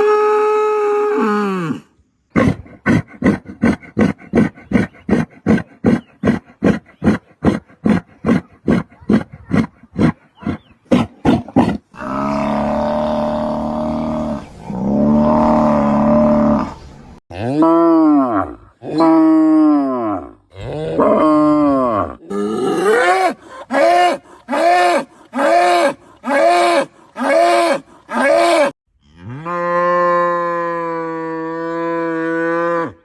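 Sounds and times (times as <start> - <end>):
animal rasping grunts: 2.4 - 16.8, 22.2 - 28.7
animal deep long calls: 9.7 - 19.2, 20.5 - 28.8.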